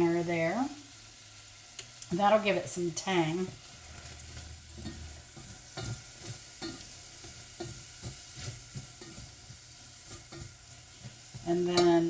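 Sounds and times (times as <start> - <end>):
onions sizzling in a pan: 0.0 - 12.0
spoon scraping a pan: 3.0 - 12.0.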